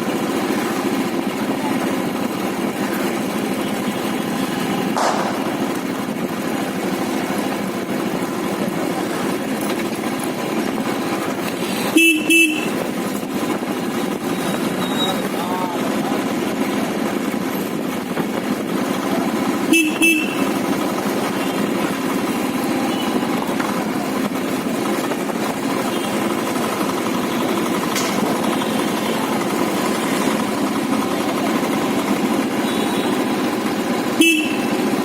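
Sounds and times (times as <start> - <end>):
motorcycle engine running: 0.0 - 35.0
motorcycle horn toots: 11.6 - 12.8, 19.6 - 20.6, 25.8 - 26.3, 32.5 - 33.4, 34.1 - 34.9.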